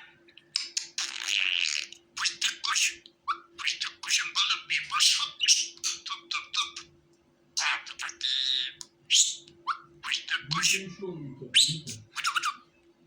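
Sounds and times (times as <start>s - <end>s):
faint steady hum: 0.0s - 13.0s
budgerigar chattering: 0.6s - 6.9s, 7.6s - 12.6s.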